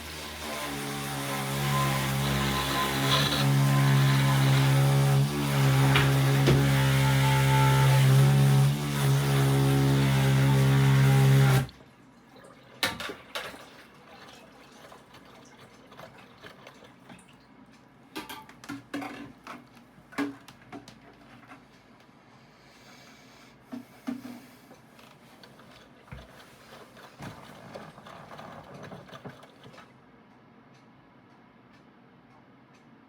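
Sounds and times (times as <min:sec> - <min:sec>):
washing machine humming: 0:00.0 - 0:18.7, 0:24.3 - 0:30.4
water moving in tub: 0:11.7 - 0:17.5.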